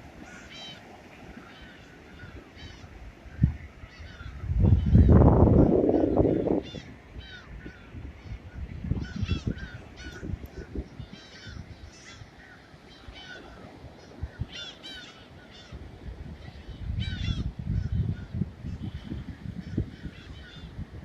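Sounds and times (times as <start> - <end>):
gulls calling: 0.2 - 15.8.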